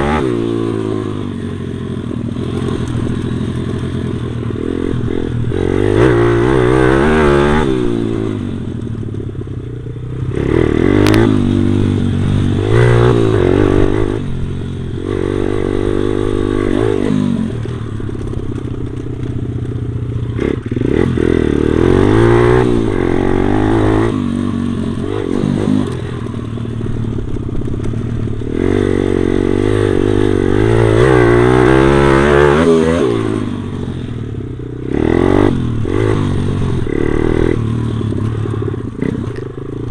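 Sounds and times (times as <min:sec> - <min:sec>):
pit bike engine revving: 0:00.0 - 0:08.8, 0:10.0 - 0:19.3, 0:20.3 - 0:39.9.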